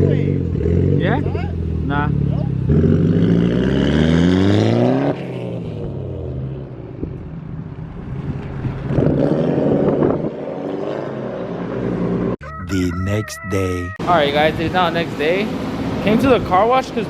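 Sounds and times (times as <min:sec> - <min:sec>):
car engine revving: 0:00.0 - 0:07.2.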